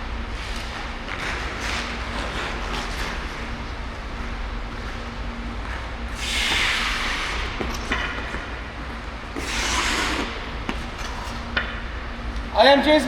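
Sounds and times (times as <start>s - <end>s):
skate blades scraping ice: 0.3s - 3.8s, 6.2s - 11.8s.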